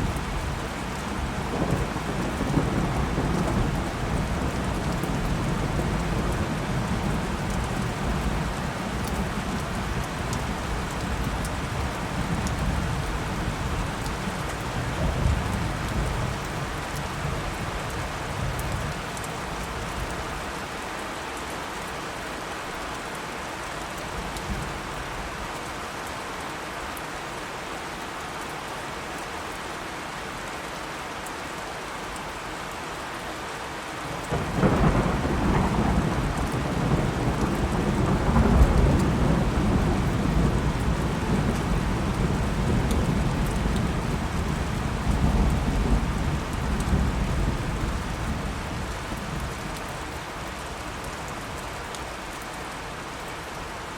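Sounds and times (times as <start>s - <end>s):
heavy rain: 0.0s - 53.9s
thunder rumbling: 0.1s - 8.6s, 34.3s - 49.7s
loud thunder clap: 34.3s - 43.3s.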